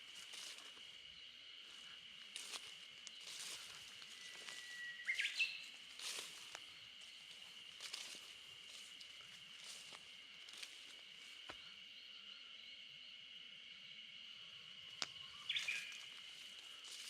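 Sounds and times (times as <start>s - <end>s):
insect chorus: 0.0s - 17.0s
bird call: 4.1s - 5.7s.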